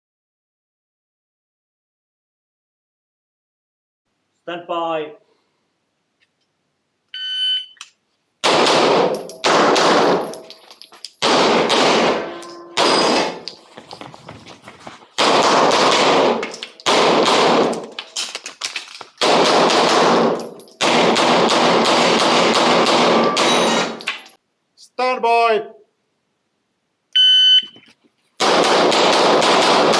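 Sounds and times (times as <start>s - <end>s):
shot timer beep: 7.2s - 7.8s, 27.2s - 27.8s
pistol shots echoing: 8.4s - 10.5s, 11.2s - 13.6s, 15.2s - 17.9s, 19.2s - 24.1s, 28.4s - 29.9s.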